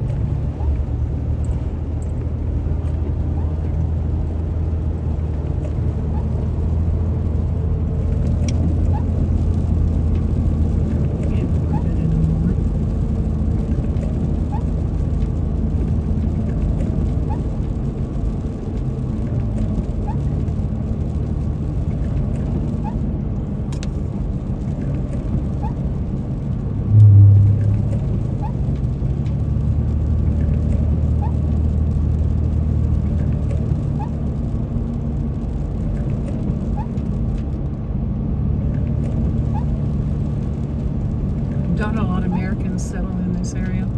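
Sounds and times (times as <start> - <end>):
car engine and road rumble: 0.0 - 43.9
low hum: 26.5 - 29.6.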